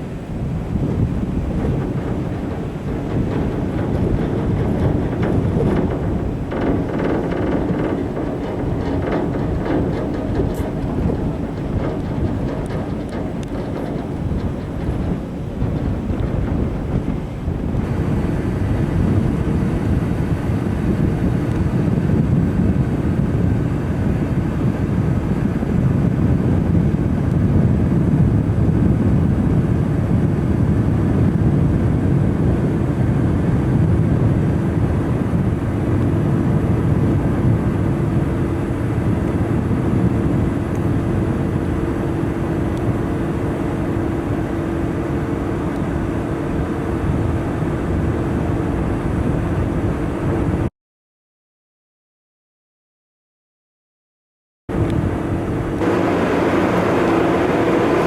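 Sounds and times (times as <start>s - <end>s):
ship engines droning: 1.2s - 19.2s, 54.7s - 58.0s.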